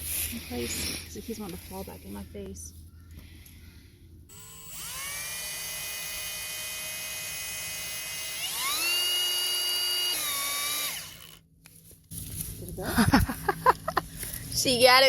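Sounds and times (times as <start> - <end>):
power drill motor whine: 4.3 - 11.4.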